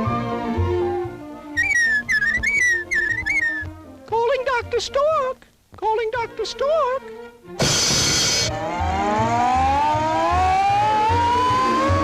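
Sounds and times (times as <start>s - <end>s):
siren wail rising: 7.6s - 12.0s.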